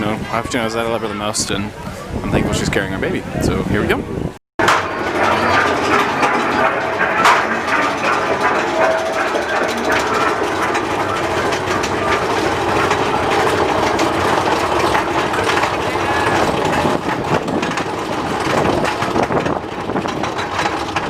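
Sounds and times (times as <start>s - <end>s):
wind noise: 0.0s - 4.4s, 5.0s - 21.0s
roller coaster rattling on track: 4.6s - 21.0s.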